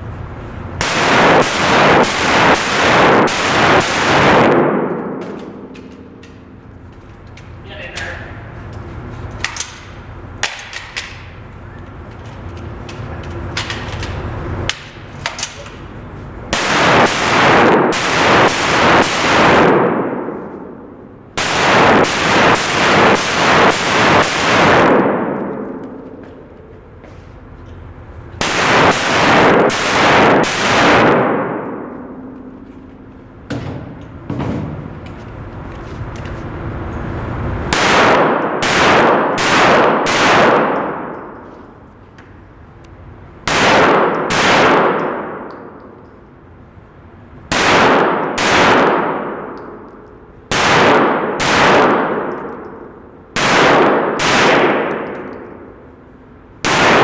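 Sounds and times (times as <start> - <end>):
gunshots with echoing decay: 0.8 - 6.7, 16.5 - 26.7, 28.4 - 32.6, 37.7 - 41.4, 43.5 - 45.8, 47.5 - 49.8, 50.5 - 55.7, 56.6 - 57.0.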